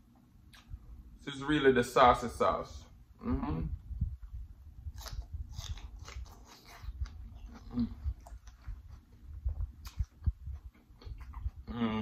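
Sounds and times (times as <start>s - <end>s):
crisp crunching while chewing: 4.9s - 11.8s
wet mouth smacks: 9.5s - 11.6s.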